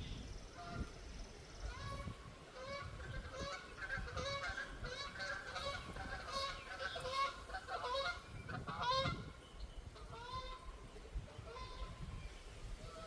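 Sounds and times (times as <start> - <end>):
wind rumble: 0.0 - 13.0
geese honking: 1.7 - 9.3.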